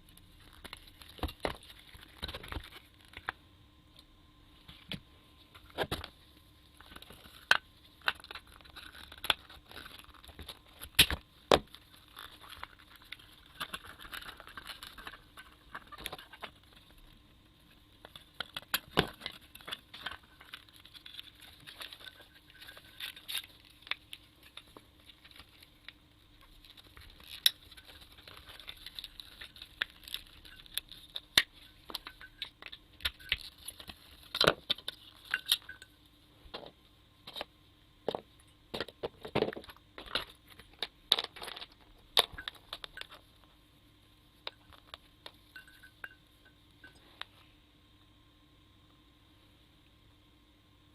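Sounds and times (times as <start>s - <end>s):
rustling and crinkling: 0.0s - 3.4s, 4.6s - 43.6s, 44.4s - 47.6s
small parts clicking and scraping: 5.5s - 35.9s, 38.1s - 43.5s.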